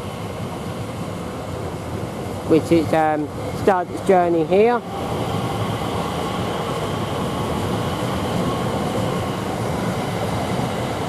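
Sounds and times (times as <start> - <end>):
electric train pulling away: 2.3 - 11.0.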